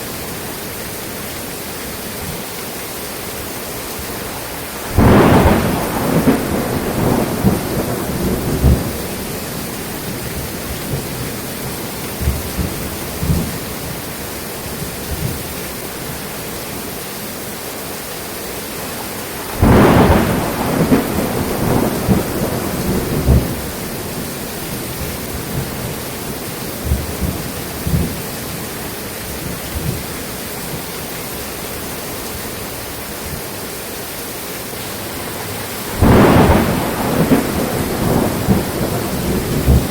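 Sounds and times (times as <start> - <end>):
steady rain: 0.0 - 39.9
thunder rumbling: 4.2 - 14.1, 19.4 - 28.6, 34.9 - 39.9.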